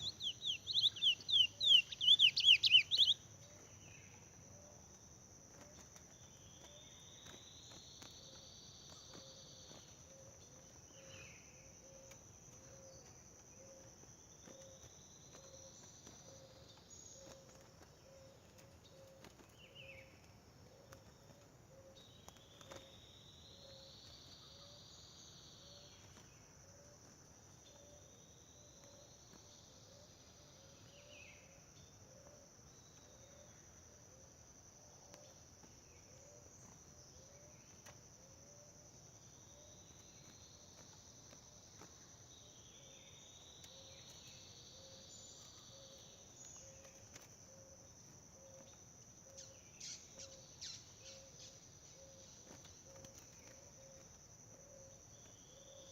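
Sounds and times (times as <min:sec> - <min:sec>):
crickets and insects trilling: 0:00.0 - 0:55.9.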